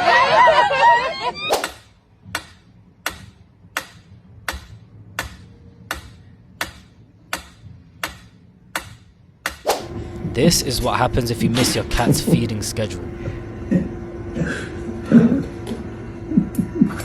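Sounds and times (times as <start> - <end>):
brief voice: 10.9 - 13.1.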